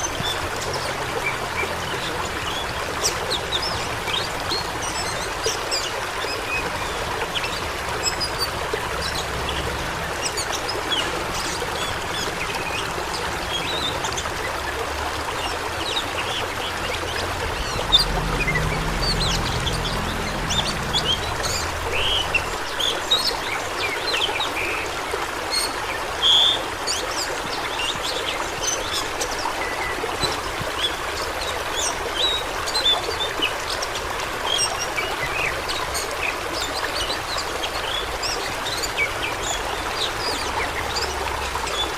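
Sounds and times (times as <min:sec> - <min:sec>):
rushing water: 0:00.0 - 0:41.9
low rumble: 0:17.0 - 0:22.7.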